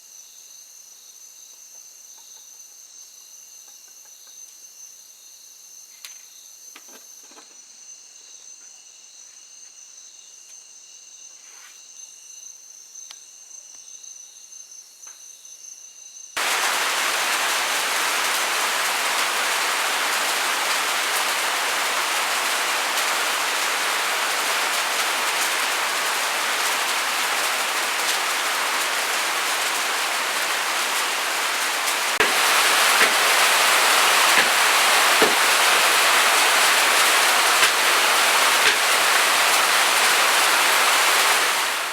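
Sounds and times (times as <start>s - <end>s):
heavy rain rushing: 16.4s - 41.9s.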